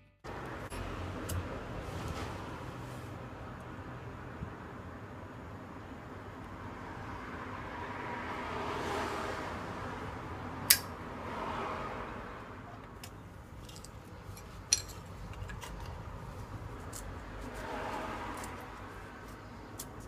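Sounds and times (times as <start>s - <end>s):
metal cookware clinking: 13.7s - 15.9s.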